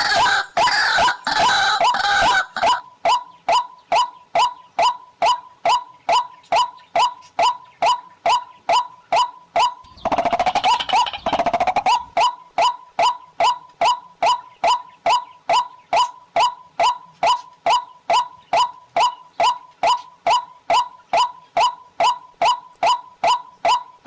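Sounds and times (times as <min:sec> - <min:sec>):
waterhen honking calls: 0:00.0 - 0:05.4.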